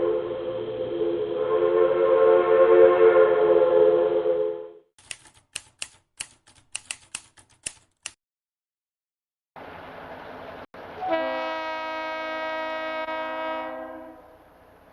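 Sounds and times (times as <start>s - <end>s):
locomotive air horn: 0.0s - 4.8s, 10.9s - 14.4s
typewriter clicks: 5.0s - 8.2s.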